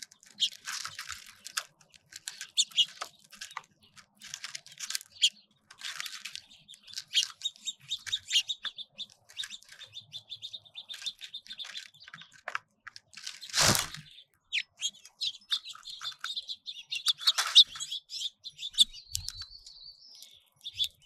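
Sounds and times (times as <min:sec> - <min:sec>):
songbirds chirping and twittering: 0:00.0 - 0:21.0
loud rustle: 0:13.2 - 0:14.0.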